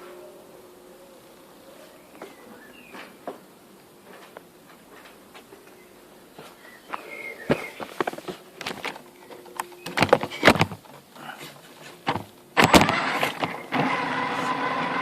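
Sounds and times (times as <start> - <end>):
plastic knocks and clatters: 7.5 - 11.1, 12.0 - 13.6
electric motor and gearbox whining: 12.1 - 15.0.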